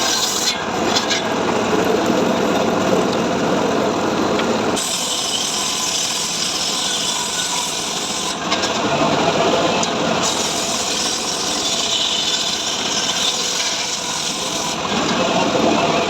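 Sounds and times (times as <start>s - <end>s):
saw cutting wood: 0.0s - 1.3s, 4.8s - 16.0s.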